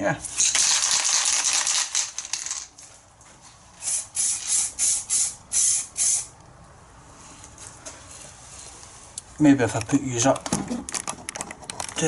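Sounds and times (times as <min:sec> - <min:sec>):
aerosol can spraying: 0:03.8 - 0:06.3.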